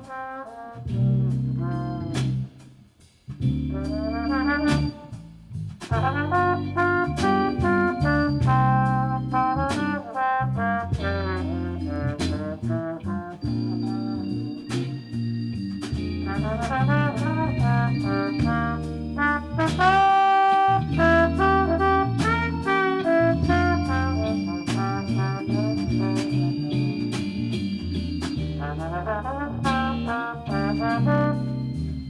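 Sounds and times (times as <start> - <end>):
jazz band playing: 0.0 - 32.0
trombones and trumpets: 0.0 - 32.0
drum and cymbal hits: 14.7 - 20.8, 24.6 - 29.0.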